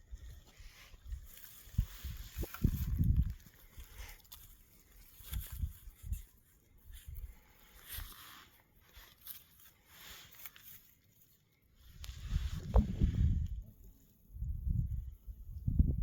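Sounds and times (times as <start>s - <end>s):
faint rustling: 0.1s - 13.6s.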